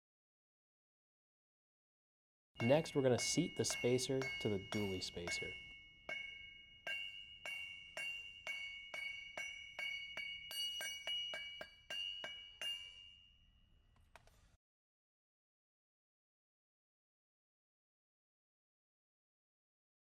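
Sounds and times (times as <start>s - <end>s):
metal spacer struck ringing: 2.6s - 13.0s.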